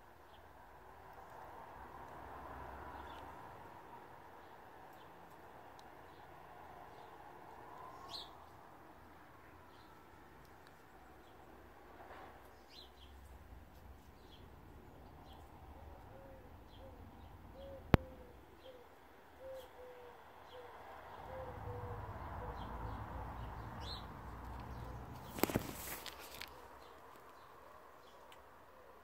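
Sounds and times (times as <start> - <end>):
small birds chirping: 2.9 - 29.0
bird hooting: 17.6 - 20.7, 21.3 - 22.6.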